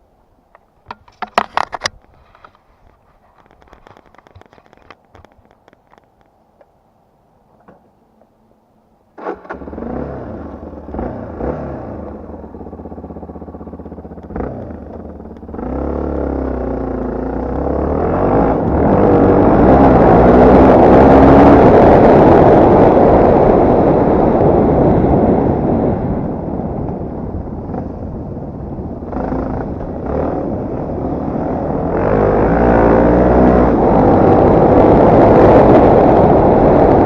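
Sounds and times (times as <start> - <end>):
motorcycle engine revving: 9.2 - 37.0.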